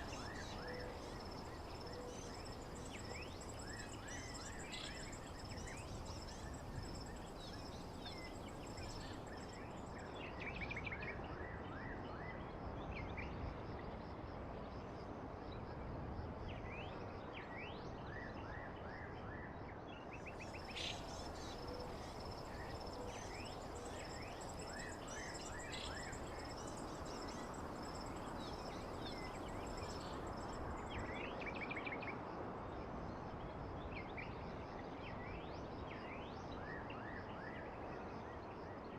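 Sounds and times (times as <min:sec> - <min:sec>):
high-pitched insect trill: 0:00.0 - 0:09.9, 0:20.4 - 0:31.1
small birds chirping: 0:20.4 - 0:31.0.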